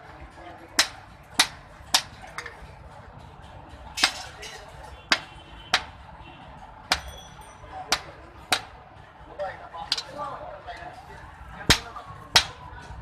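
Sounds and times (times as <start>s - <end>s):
hammer striking iron on anvil: 0.8s - 2.5s, 6.9s - 8.8s, 11.7s - 12.6s.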